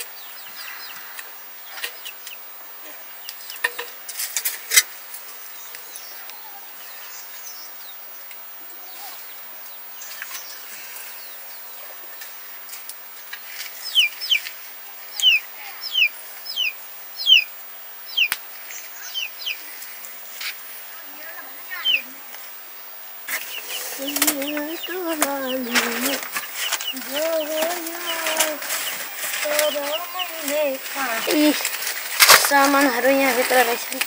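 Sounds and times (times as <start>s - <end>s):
bird chirping: 13.3s - 14.5s, 15.1s - 19.8s, 20.4s - 22.2s, 23.3s - 32.0s.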